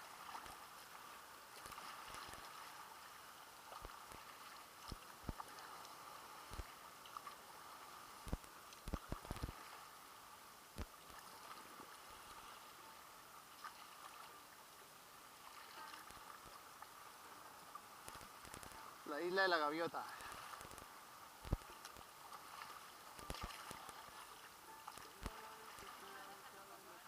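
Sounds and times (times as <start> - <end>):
water lapping around kayak: 0.0 - 27.0
soft knocks and splashes: 20.2 - 26.4.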